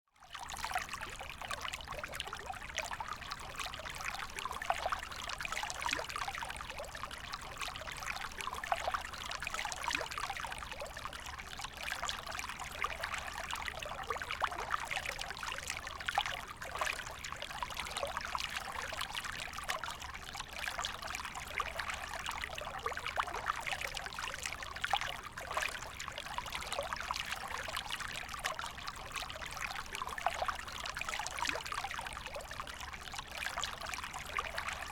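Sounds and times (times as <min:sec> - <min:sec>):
creek water trickling: 0:00.2 - 0:34.9.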